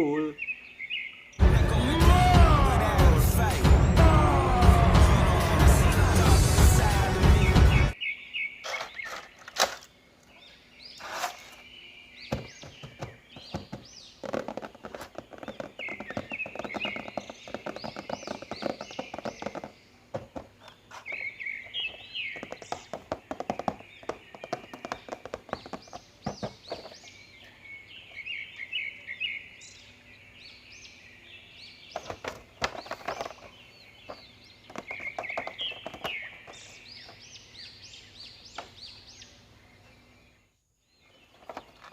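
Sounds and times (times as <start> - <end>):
small birds chirping: 0.0 - 1.8, 5.8 - 41.9
music: 1.4 - 8.0.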